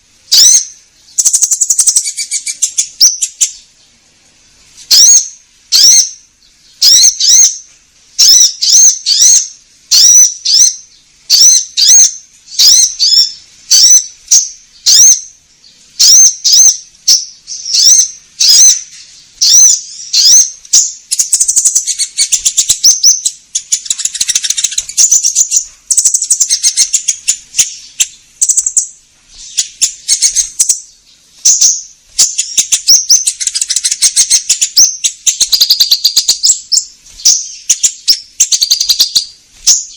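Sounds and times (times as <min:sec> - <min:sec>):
sunbird chirping and trilling: 0:00.0 - 0:39.9.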